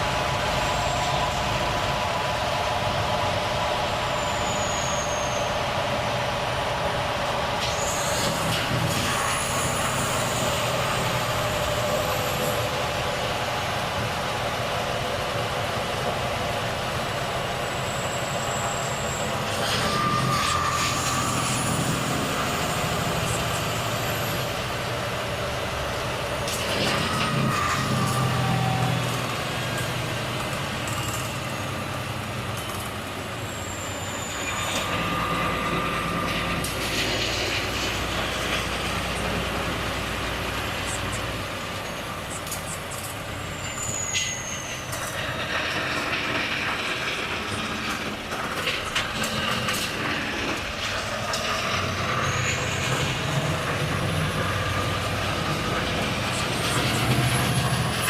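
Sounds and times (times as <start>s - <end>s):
short high squeals: 4.0s - 5.8s, 7.6s - 12.8s, 17.6s - 24.7s, 26.5s - 39.3s, 40.9s - 45.4s, 51.4s - 53.6s
air brakes hissing: 4.1s - 5.6s
truck diesel engine running: 27.6s - 44.6s.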